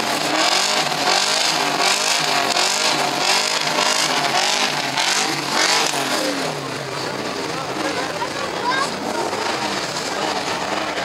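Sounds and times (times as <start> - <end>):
many car engines revving: 0.0 - 11.0.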